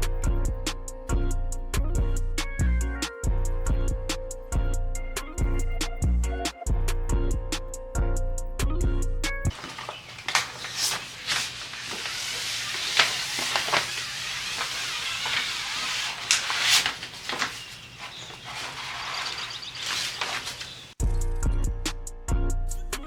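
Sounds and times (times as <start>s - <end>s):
music: 0.0s - 9.6s, 21.0s - 23.0s
rustling hiss with crackles: 9.6s - 21.0s.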